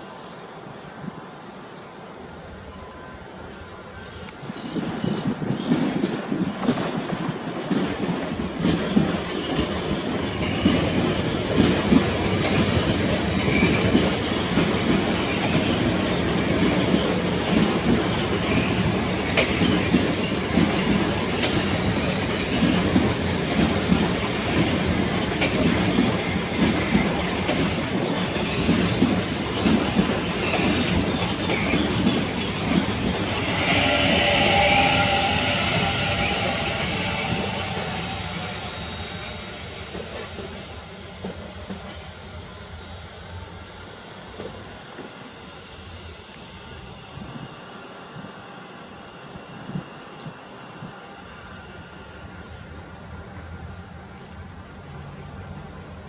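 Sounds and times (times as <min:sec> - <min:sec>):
train rumbling on rails: 0:00.0 - 0:56.0
wheels clicking over rail joints: 0:04.2 - 0:33.5
wheel squeal: 0:29.8 - 0:40.9.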